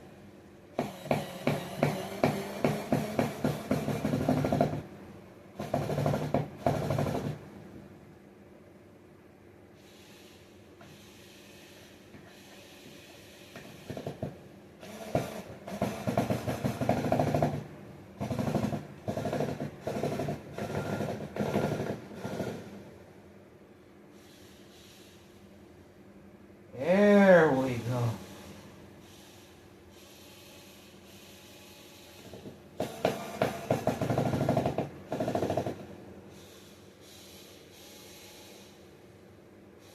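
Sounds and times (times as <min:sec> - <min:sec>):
power drill driving a screw: 0:00.8 - 0:04.8, 0:14.8 - 0:17.5, 0:30.1 - 0:35.8.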